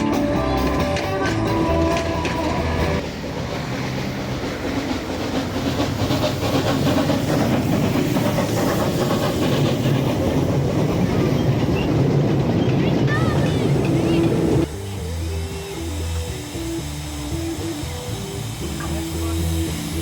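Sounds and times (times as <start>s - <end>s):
background music: 0.0s - 3.0s, 13.1s - 20.0s
train rumbling on track: 0.0s - 20.0s.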